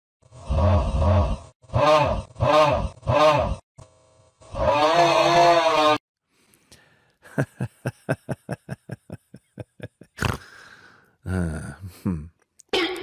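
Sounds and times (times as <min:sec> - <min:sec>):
person's voice: 0:10.2 - 0:13.0.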